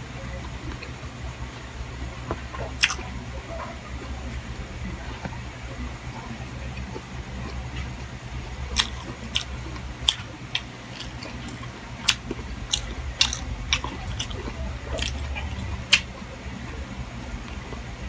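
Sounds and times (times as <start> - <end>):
close chewing and mouth smacks: 2.3 - 4.2, 8.7 - 16.2.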